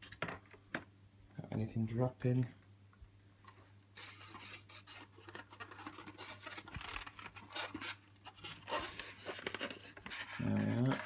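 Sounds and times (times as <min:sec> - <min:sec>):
polystyrene and cardboard scraping: 0:04.0 - 0:11.0.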